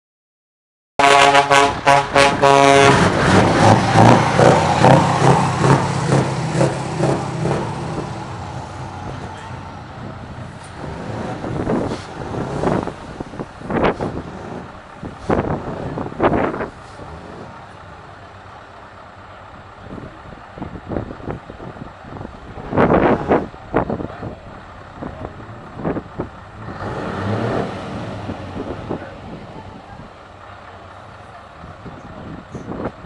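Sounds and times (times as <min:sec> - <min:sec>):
truck horn pulses: 0:01.0 - 0:07.6
truck engine pulsing: 0:01.2 - 0:33.0.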